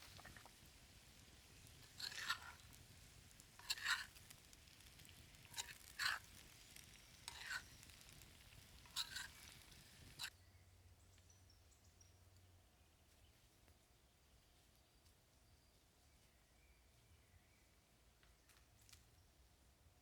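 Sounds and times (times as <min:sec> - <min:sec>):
utensil scraping cooking pan: 0:00.0 - 0:10.3.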